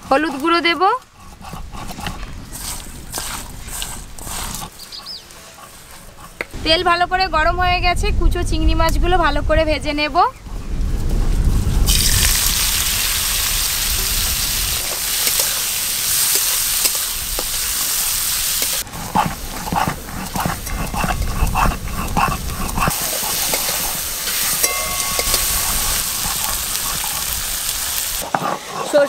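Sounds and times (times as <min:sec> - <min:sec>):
shrimp sizzling in hot oil: 0:11.8 - 0:19.3, 0:22.8 - 0:28.4.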